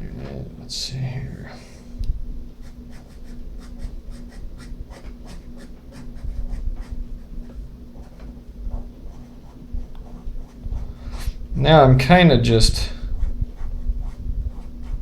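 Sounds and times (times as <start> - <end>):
pen scratching on paper: 2.6 - 11.4, 13.0 - 15.0.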